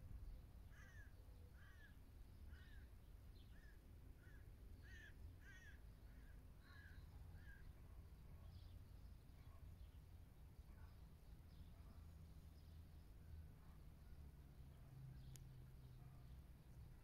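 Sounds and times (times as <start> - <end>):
distant bird calling: 3.5 - 7.7.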